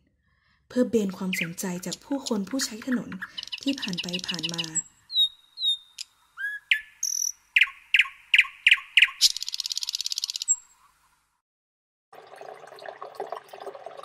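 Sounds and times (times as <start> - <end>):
songbirds whistling and chirping: 1.2 - 1.9, 3.2 - 10.9
rapid high bird trill: 1.2 - 2.1, 3.2 - 10.8.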